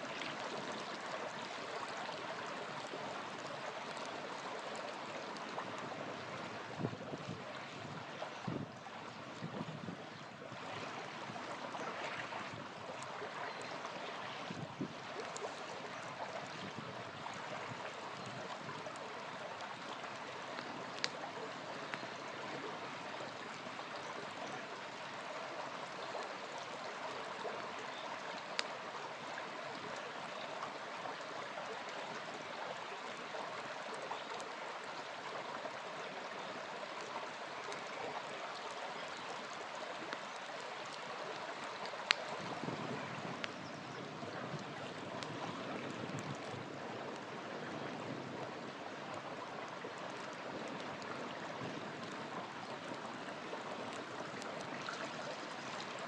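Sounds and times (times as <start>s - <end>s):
river flowing over stones: 0.0s - 56.0s
campfire popping: 17.4s - 22.5s, 28.4s - 28.7s, 40.1s - 43.6s.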